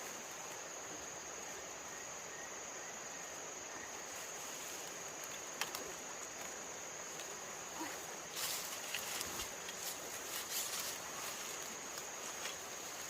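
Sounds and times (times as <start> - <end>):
outdoor hiss: 0.0 - 13.0
clicks and crackling: 5.2 - 5.9.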